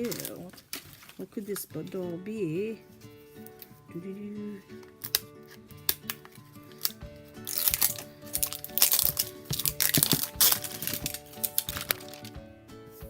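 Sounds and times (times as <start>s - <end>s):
plastic wrapping crinkling: 0.0s - 2.0s, 4.7s - 12.4s
background music with held notes: 0.0s - 13.0s.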